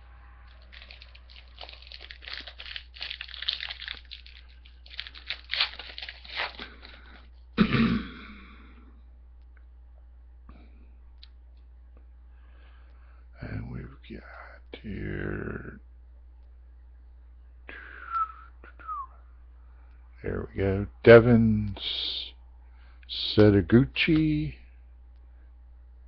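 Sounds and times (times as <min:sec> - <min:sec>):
wrapper crinkling and tearing: 0:00.5 - 0:07.3
person coughing: 0:07.6 - 0:08.8.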